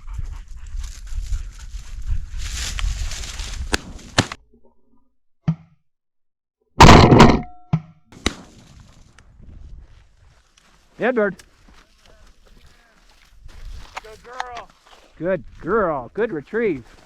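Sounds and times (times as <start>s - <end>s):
wind rumble: 0.0s - 4.2s
loud shotgun shot: 6.8s - 7.5s, 8.2s - 8.5s.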